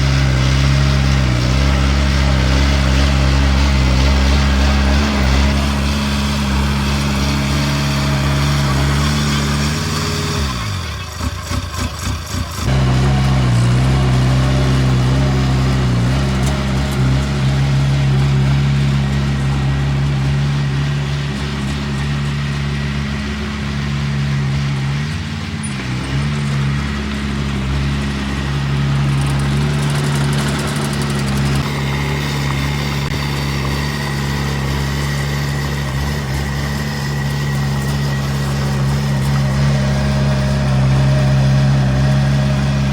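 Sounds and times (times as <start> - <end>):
diesel machinery engine running: 0.0 - 42.9.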